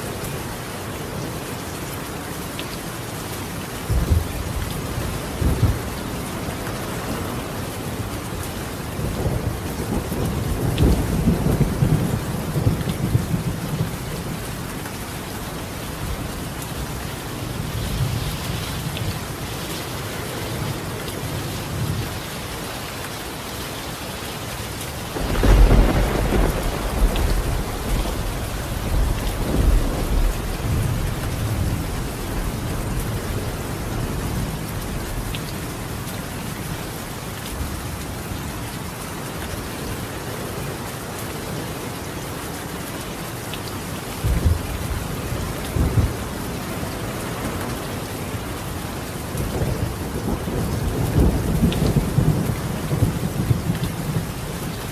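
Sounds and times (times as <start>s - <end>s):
rain on a tile roof: 0.0s - 54.9s
thunder rumbling: 25.1s - 35.3s.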